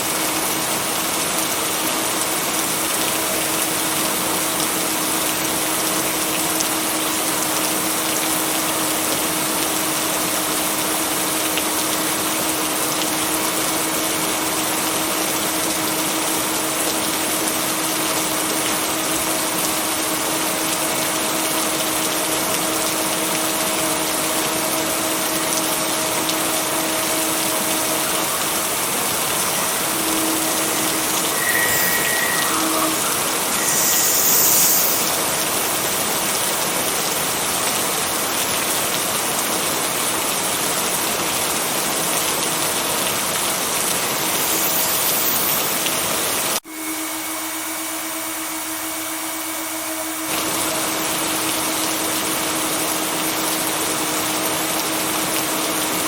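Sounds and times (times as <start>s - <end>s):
heavy rain: 0.0s - 46.6s, 50.3s - 56.0s.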